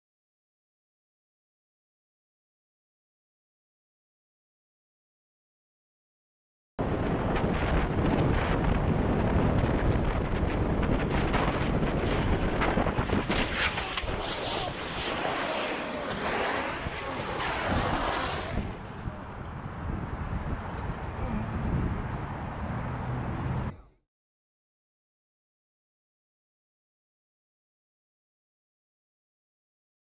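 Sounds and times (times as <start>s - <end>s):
wind rumble on microphone: 6.8s - 23.9s
car road noise: 6.9s - 23.8s.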